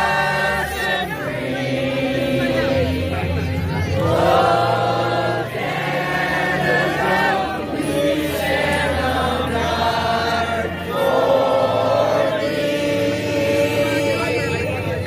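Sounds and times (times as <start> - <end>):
voices singing in held notes: 0.0 - 15.0.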